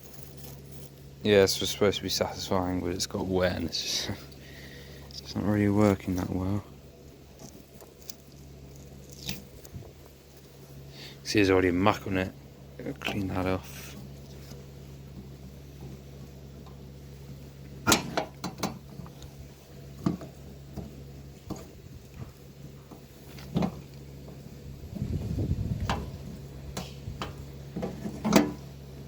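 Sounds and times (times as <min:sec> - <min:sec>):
steady low hum: 0:00.0 - 0:29.0
short rough rumble: 0:21.2 - 0:28.8.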